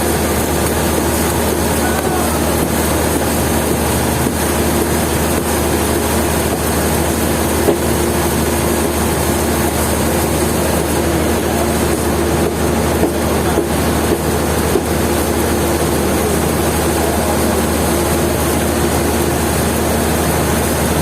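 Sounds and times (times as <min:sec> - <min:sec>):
sawmill machinery running: 0:00.0 - 0:21.0.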